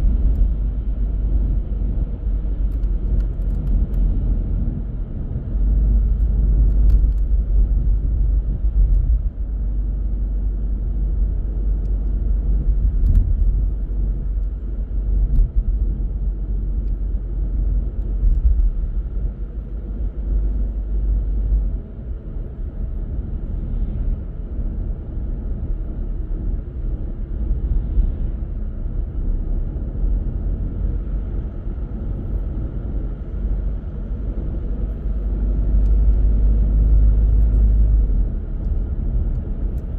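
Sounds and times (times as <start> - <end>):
car engine rumble: 0.0 - 39.9
road noise: 0.0 - 39.9.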